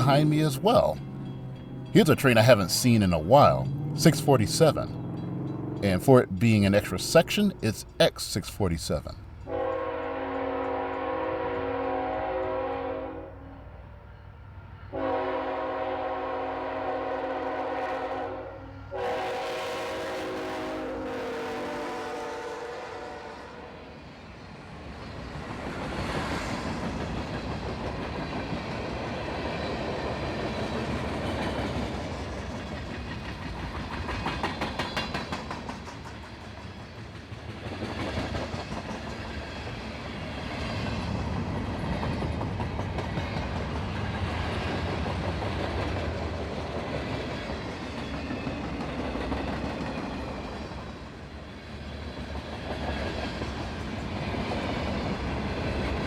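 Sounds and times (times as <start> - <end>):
freight train rumble: 0.0 - 56.0
wheels clicking over rail joints: 25.8 - 50.2.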